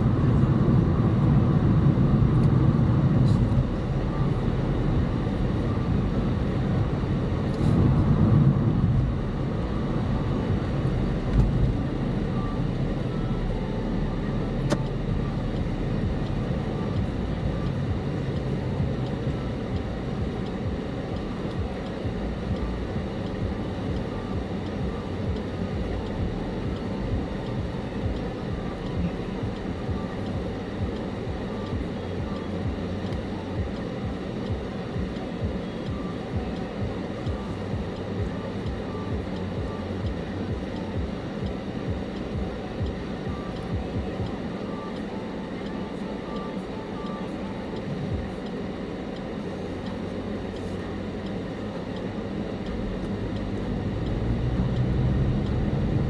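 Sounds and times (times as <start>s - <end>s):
car engine and road noise: 0.0s - 56.0s
faint repeating tick: 14.6s - 45.6s, 46.2s - 56.0s.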